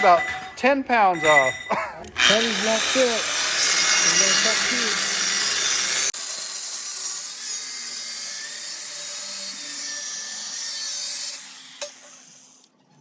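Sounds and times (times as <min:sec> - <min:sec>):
power tool cutting steel bar: 0:02.1 - 0:12.7.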